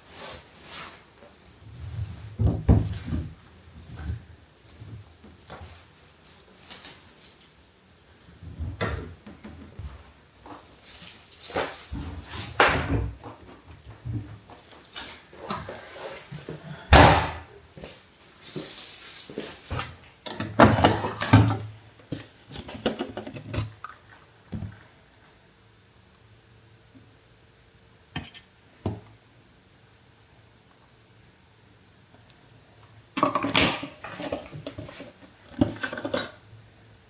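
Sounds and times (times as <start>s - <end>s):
household knocks and bangs: 16.9s - 17.5s.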